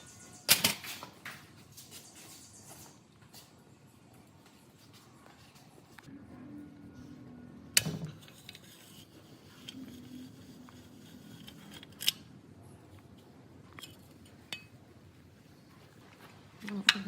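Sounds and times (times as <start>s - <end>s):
faint low hum: 3.8s - 17.0s.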